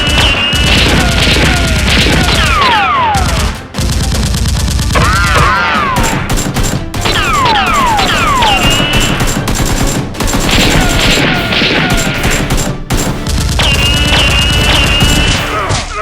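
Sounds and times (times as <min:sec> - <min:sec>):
falling whistling tones: 0:00.0 - 0:00.8, 0:13.6 - 0:15.4
rapid gunfire: 0:00.0 - 0:15.8
background music: 0:00.0 - 0:16.0.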